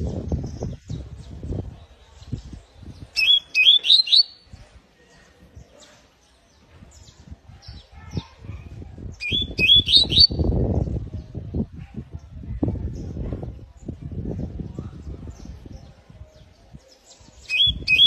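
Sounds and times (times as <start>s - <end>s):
canary chirping: 3.1s - 4.4s, 9.2s - 10.4s.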